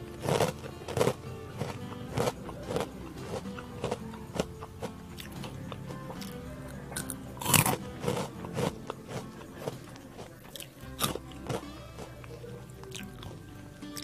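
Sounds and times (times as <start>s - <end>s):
crunchy snack being chewed: 0.0s - 14.0s
faint background music: 0.0s - 14.0s.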